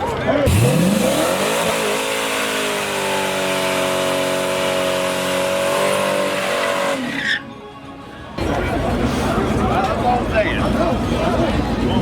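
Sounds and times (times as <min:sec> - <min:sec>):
race car engine at high revs: 0:00.4 - 0:07.2.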